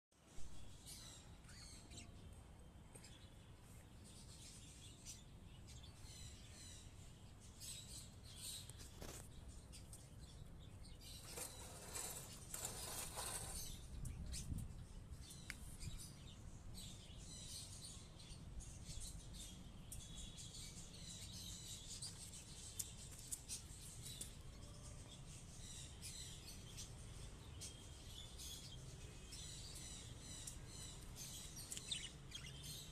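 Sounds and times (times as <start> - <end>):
budgerigars chirping and chattering: 10.9 - 14.4, 25.6 - 32.9
rustling noise: 11.1 - 14.1.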